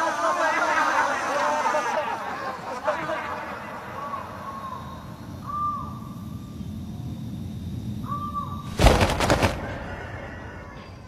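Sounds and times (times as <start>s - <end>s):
bird calling: 3.8s - 6.4s, 8.0s - 11.0s.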